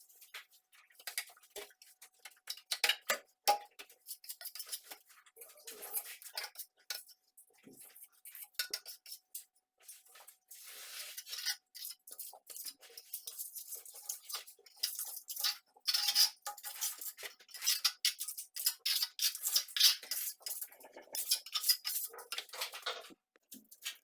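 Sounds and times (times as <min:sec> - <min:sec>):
metal trowel scraping plaster: 0:03.9 - 0:09.3, 0:10.0 - 0:23.0.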